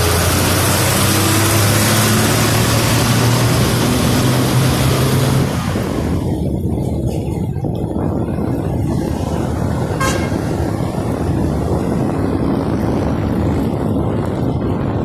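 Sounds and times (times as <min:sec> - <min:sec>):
low road rumble: 0:00.0 - 0:15.0
short high horn toot: 0:10.0 - 0:10.4.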